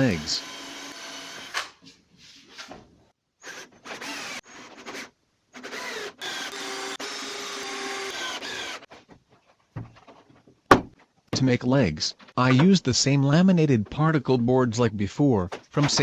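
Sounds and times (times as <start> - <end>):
power drill running: 0.2 - 1.6, 3.5 - 4.7, 5.6 - 8.9.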